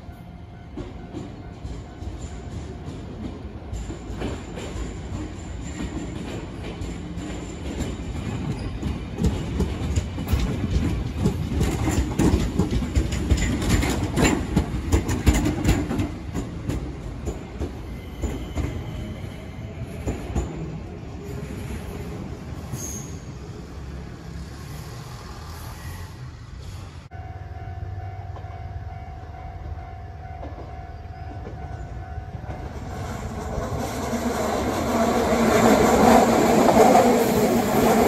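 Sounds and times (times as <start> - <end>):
electric train rumbling past: 0.0 - 38.0
wheels clacking over rail joints: 0.7 - 19.0.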